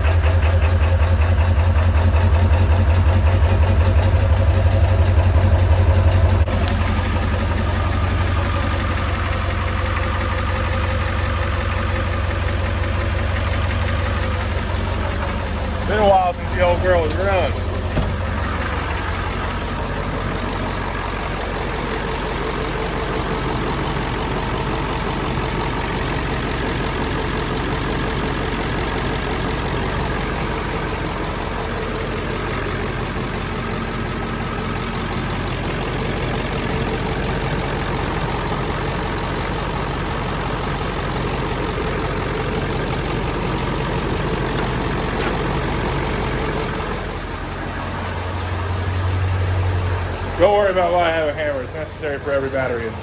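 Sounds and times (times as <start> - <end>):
diesel pickup engine idling: 0.0 - 53.0.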